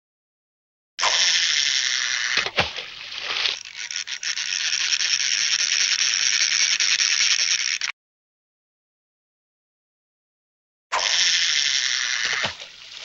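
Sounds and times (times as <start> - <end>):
high-pitched rattle: 3.5 - 7.9.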